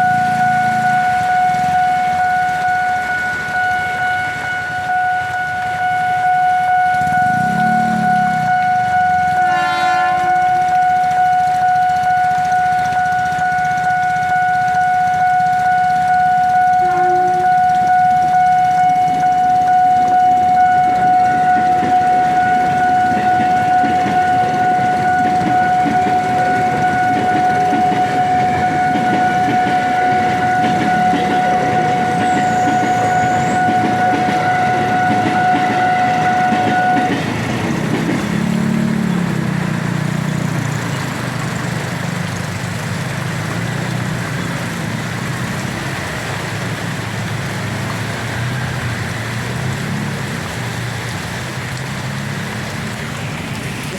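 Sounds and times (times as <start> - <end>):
level crossing alarm tone: 0.0 - 41.0
train rumbling past: 0.0 - 53.9.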